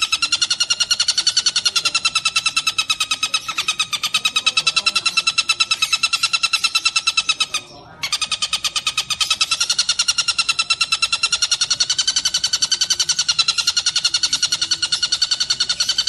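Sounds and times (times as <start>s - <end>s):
kingfisher rattling trill: 0.0s - 16.0s.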